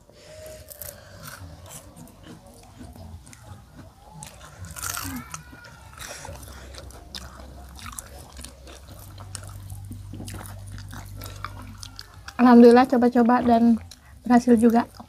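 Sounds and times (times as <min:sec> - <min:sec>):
crunchy biting and chewing: 0:00.0 - 0:12.8, 0:13.5 - 0:15.0.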